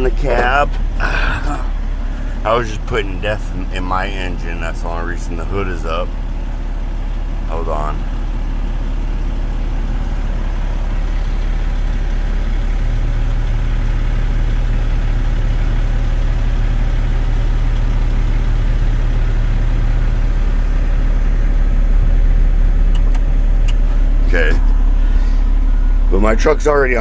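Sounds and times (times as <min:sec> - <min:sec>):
diesel truck engine idling: 0:00.0 - 0:27.0
steady hum: 0:19.6 - 0:27.0.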